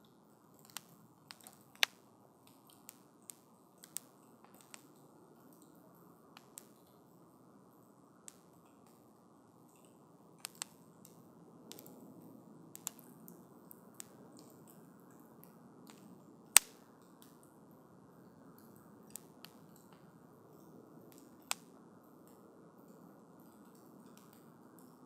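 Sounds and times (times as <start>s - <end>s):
burning logs crackling and popping: 0.5s - 7.1s, 8.2s - 17.5s, 18.2s - 25.0s
campfire hissing: 10.4s - 11.9s, 12.7s - 14.2s, 21.1s - 21.8s.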